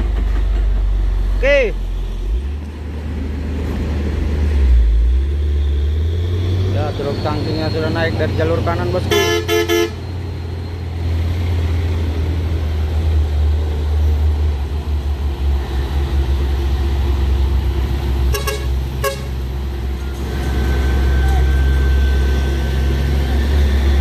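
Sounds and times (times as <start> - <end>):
truck diesel engine rumbling: 0.0 - 24.0
short horn toots: 9.0 - 10.0, 18.3 - 19.4.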